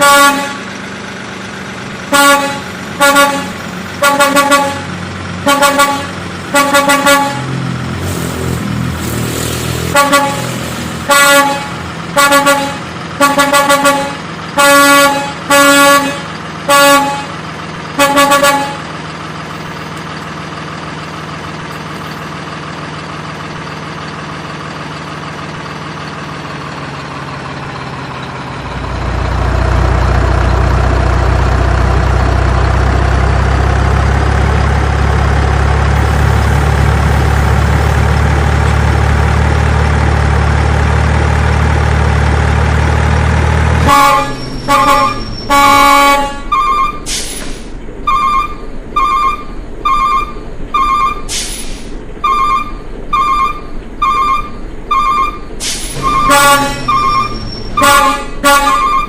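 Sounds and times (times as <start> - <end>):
truck horn honking: 0.0 - 0.8, 1.9 - 19.0, 43.5 - 59.0
deep engine idling: 0.0 - 59.0
engine hum: 0.0 - 59.0.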